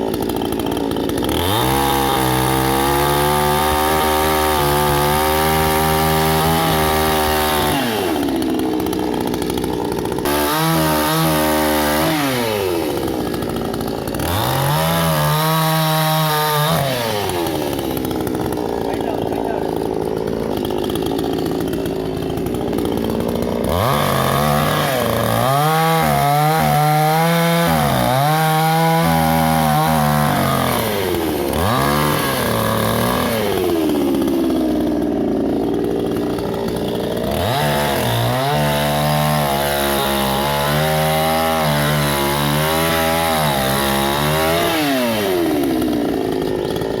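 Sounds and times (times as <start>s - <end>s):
chainsaw cutting wood: 0.0s - 47.0s.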